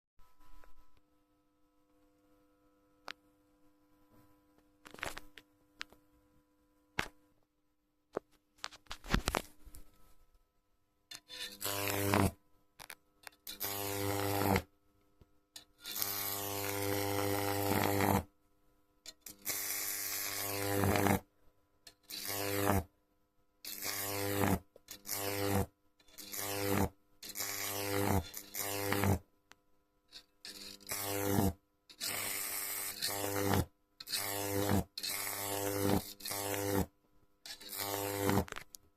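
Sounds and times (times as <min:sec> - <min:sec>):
transformer mains buzz: 0:11.3 - 0:14.7, 0:15.8 - 0:18.3, 0:19.3 - 0:21.2, 0:22.1 - 0:22.9, 0:23.7 - 0:29.2, 0:30.5 - 0:36.9, 0:37.5 - 0:38.7
high-voltage arcing crackle: 0:11.4 - 0:14.7, 0:15.8 - 0:18.3, 0:19.3 - 0:21.2, 0:22.1 - 0:22.8, 0:23.7 - 0:29.2, 0:30.5 - 0:36.9, 0:37.5 - 0:38.8.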